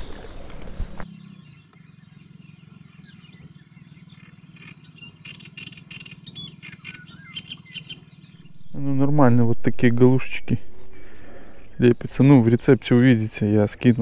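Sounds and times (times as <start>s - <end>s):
birds chirping: 0.0s - 14.0s
faint low hum: 8.4s - 14.0s.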